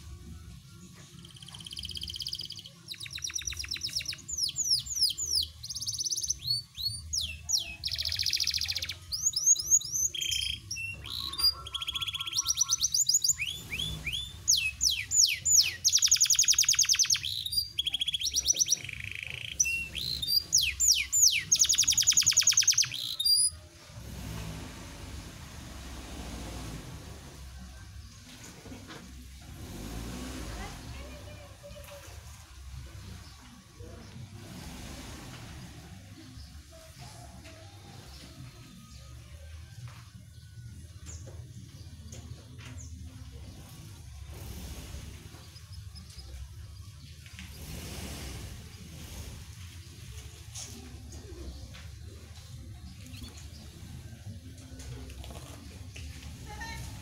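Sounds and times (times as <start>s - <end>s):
canary singing trills: 0.8s - 23.7s.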